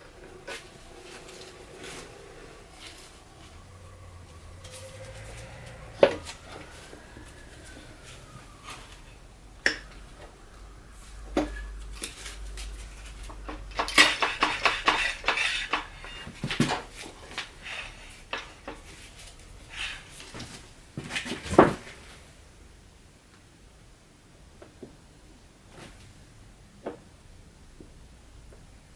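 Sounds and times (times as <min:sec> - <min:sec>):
metal parts and tools clinking: 0:11.4 - 0:19.1.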